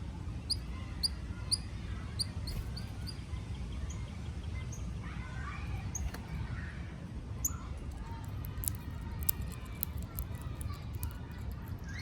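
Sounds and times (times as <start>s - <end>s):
sharp little ticks: 7.9s - 12.0s.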